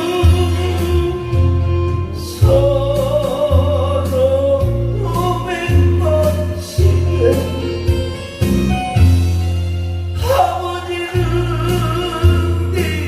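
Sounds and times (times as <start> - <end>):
bass notes: 0.0 - 13.0
person singing with vibrato: 2.2 - 8.5.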